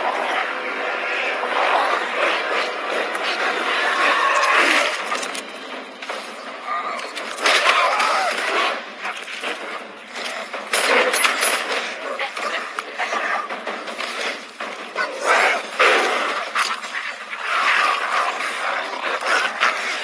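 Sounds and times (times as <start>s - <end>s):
dogs snarling and yelping: 6.7s - 20.0s.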